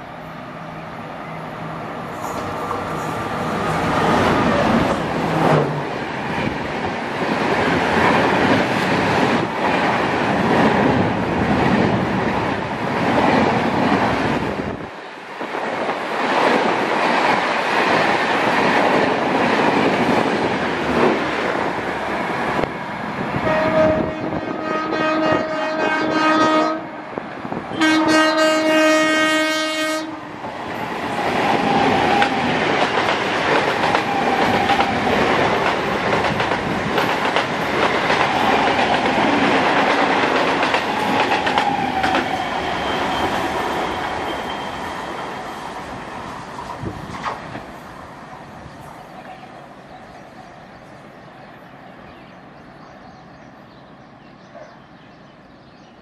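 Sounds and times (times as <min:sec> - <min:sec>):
train wheels roaring on rails: 0:00.0 - 0:55.0
train passing on adjacent track: 0:00.0 - 0:56.0
train horn blasts: 0:23.4 - 0:27.1, 0:27.7 - 0:30.3
clickety-clack of rail joints: 0:30.4 - 0:44.5, 0:46.5 - 0:47.8.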